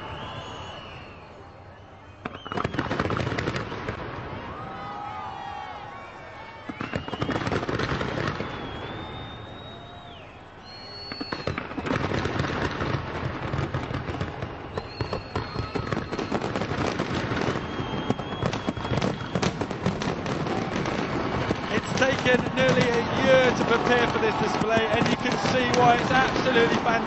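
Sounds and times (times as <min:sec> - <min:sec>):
whistling firework shells: 0:00.0 - 0:04.0, 0:06.6 - 0:12.4, 0:14.6 - 0:27.0
fireworks bangs and crackling: 0:02.2 - 0:05.3, 0:06.6 - 0:09.8, 0:10.8 - 0:27.0.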